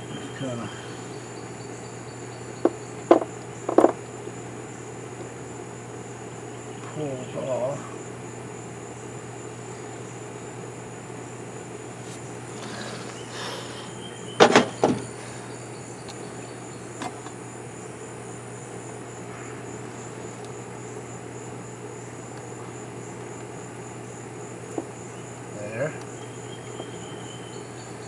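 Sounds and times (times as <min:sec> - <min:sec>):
crickets chirping: 0:00.0 - 0:28.0
sharp clicks and knocks: 0:02.6 - 0:04.0.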